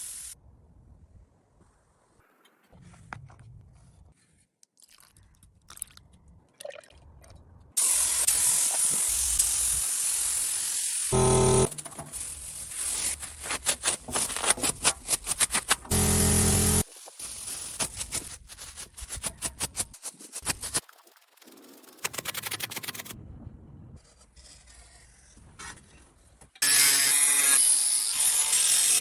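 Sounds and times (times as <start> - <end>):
spraying hiss: 0.0 - 0.4, 7.8 - 11.2.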